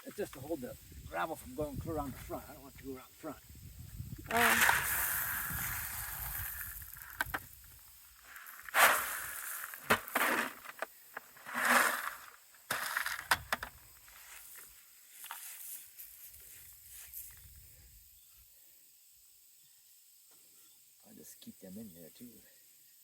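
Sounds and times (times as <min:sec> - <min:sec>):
gravel crunching: 0:04.2 - 0:16.2.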